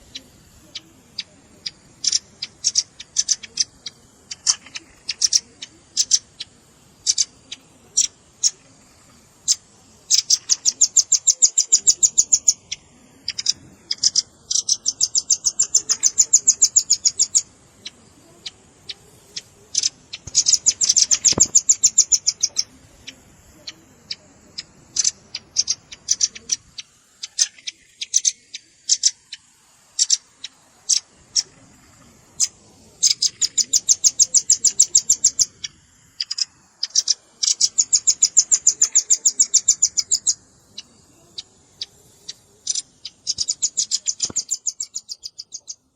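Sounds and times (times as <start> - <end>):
nuthatch chips and rattling trills: 0.0 - 45.9.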